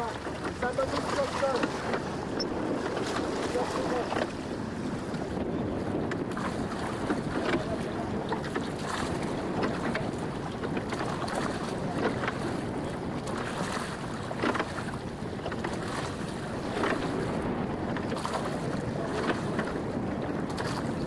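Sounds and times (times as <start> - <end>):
water splashing along hull: 0.0 - 21.0
wind buffeting microphone: 0.0 - 21.0.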